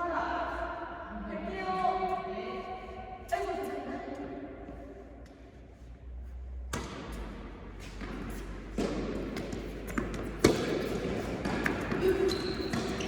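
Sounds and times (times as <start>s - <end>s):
play noise on indoor court: 0.0s - 13.0s
tennis ball thuds: 6.6s - 13.0s.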